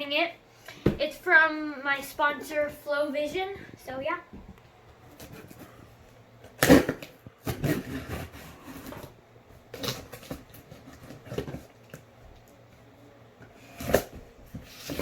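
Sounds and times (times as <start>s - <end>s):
cardboard box scraping and tearing: 6.6s - 9.1s.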